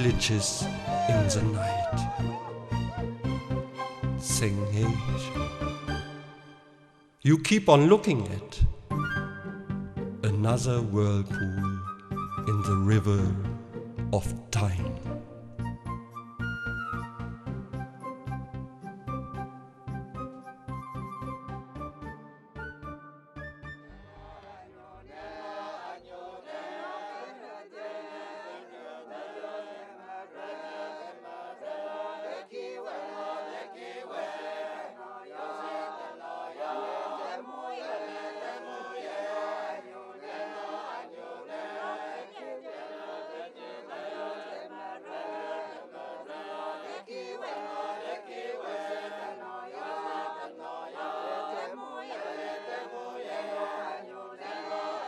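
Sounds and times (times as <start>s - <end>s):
choir singing slow chant: 24.1s - 55.0s.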